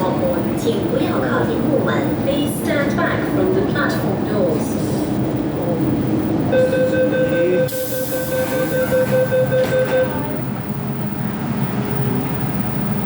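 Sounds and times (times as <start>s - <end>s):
low rumble of train: 0.0s - 13.0s
door-closing warning beeps: 6.5s - 10.5s
sharp hiss of air: 7.7s - 8.7s.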